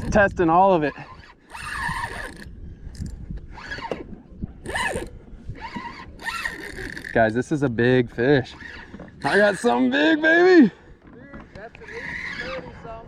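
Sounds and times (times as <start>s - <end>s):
fishing reel drag zipping: 0.9s - 7.5s, 8.3s - 10.1s, 11.8s - 12.9s.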